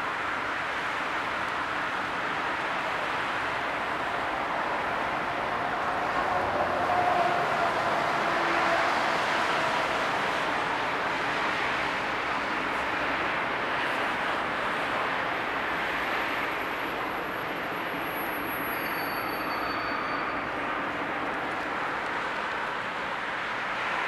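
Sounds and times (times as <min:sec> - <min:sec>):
train rolling noise: 0:02.7 - 0:24.0.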